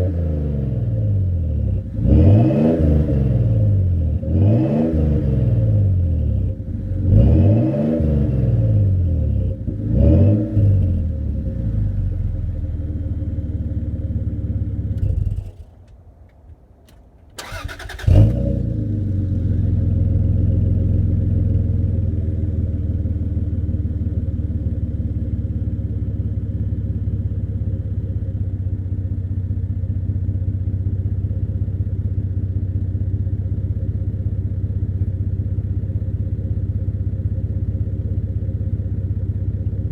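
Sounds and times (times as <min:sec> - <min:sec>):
car engine idling: 0:10.9 - 0:39.9
starter motor cranking: 0:17.4 - 0:18.4
engine revving blip: 0:17.4 - 0:18.6.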